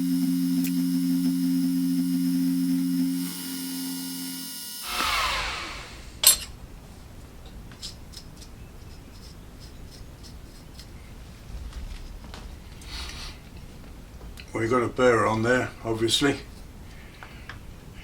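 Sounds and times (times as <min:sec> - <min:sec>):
milling machine motor hum: 0:00.0 - 0:06.2
spindle whirring down: 0:00.0 - 0:06.6.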